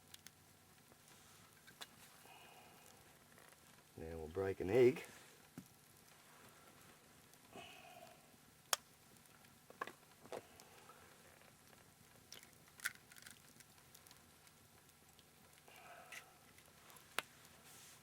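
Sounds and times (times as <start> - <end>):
egg cracking taps and clicks: 12.2 - 14.9.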